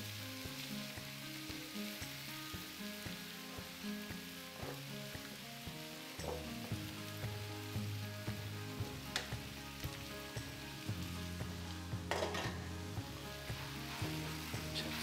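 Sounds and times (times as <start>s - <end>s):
batter sizzling in a frying pan: 0.0s - 15.0s
lid and spatula knocking on pan: 4.6s - 4.9s, 6.2s - 6.8s, 8.8s - 9.6s, 12.0s - 12.7s.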